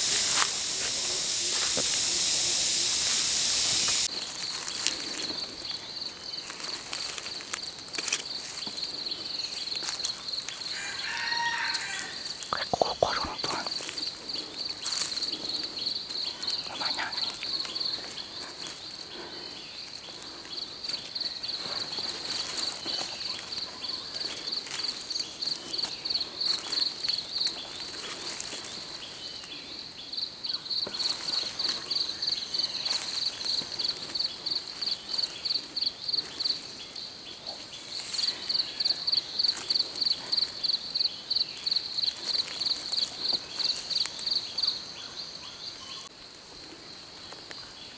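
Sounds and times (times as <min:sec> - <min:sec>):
cricket chirping: 0:00.0 - 0:06.5.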